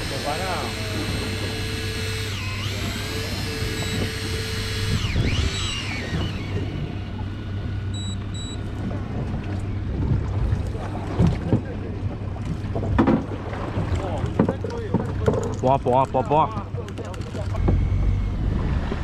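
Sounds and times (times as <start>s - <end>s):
electric fishing reel whining: 0.0s - 8.7s
boat engine humming: 0.0s - 19.0s
short high beeps: 7.9s - 8.6s.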